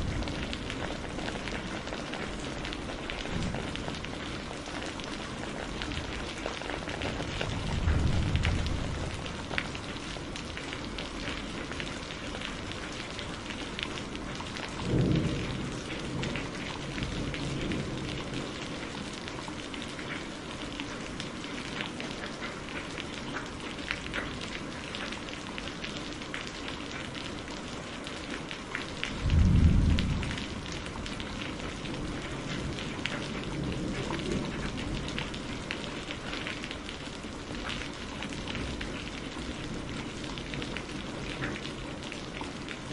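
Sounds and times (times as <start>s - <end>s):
steady rain: 0.0s - 42.9s
thunder rolling: 7.4s - 9.7s, 29.2s - 32.8s.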